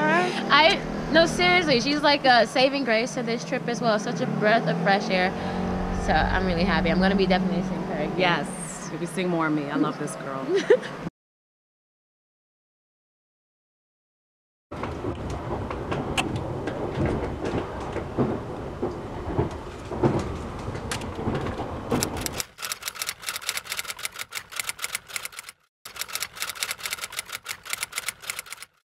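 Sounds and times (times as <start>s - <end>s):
train rumble inside carriage: 5.3s - 8.4s, 14.8s - 22.4s.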